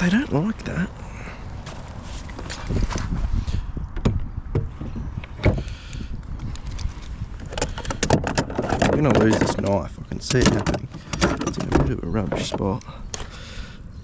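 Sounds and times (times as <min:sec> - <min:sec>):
wind: 0:00.0 - 0:14.0
knocks and rattles on a kayak: 0:03.9 - 0:13.3
water: 0:05.7 - 0:08.5.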